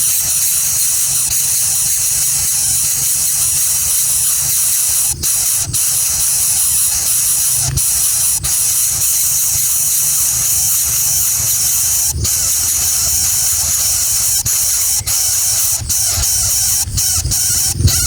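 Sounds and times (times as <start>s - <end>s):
loud high-pitched hiss: 0.0s - 18.0s
low rumble: 7.5s - 8.1s.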